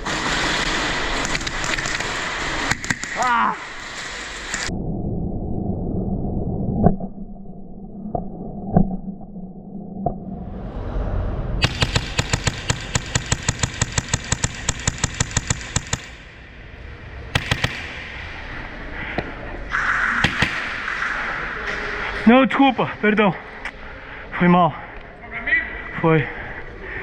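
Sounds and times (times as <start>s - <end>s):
airsoft guns firing: 0.0s - 4.7s, 11.6s - 16.4s, 17.3s - 18.5s, 20.2s - 21.1s.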